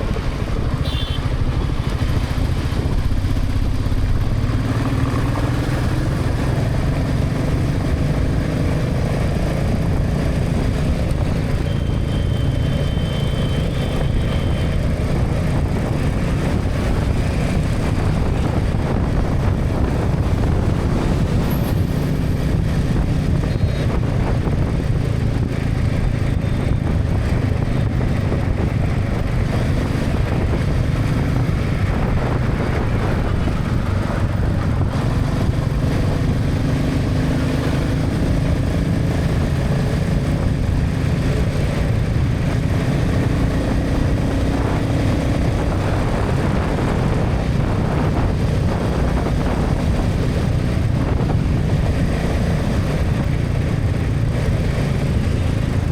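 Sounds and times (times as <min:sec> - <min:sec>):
motorcycle engine running: 0:00.0 - 0:55.9
wind and tyre noise: 0:00.0 - 0:55.9.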